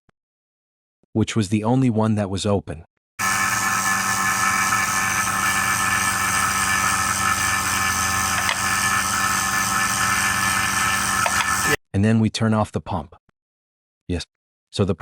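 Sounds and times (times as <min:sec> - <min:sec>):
vacuum pump humming and hissing: 0:03.2 - 0:11.8.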